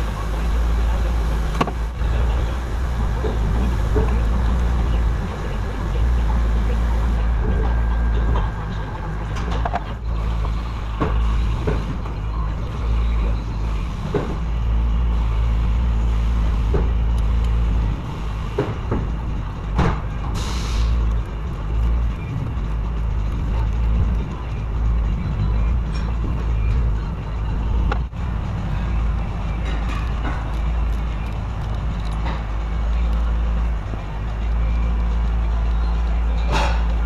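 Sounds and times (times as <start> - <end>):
steady low hum: 0.0 - 37.0
short hiss: 20.4 - 21.0.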